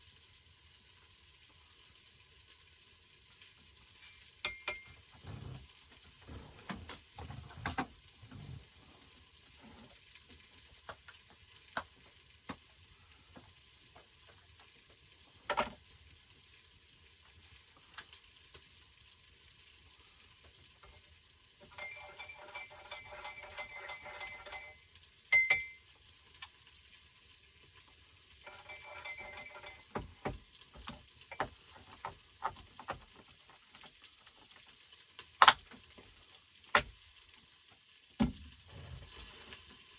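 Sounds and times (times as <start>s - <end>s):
food sizzling in a frying pan: 0.0s - 39.9s
utensil stirring in a cup: 21.6s - 25.8s, 28.4s - 33.0s.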